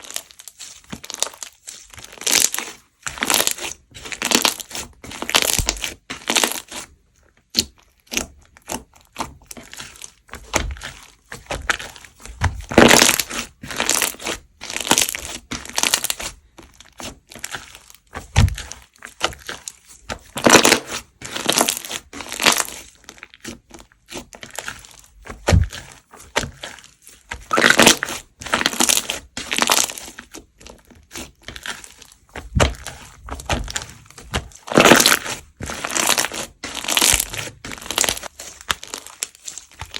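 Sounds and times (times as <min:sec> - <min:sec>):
slime squeezed by hand: 0:24.1 - 0:39.9.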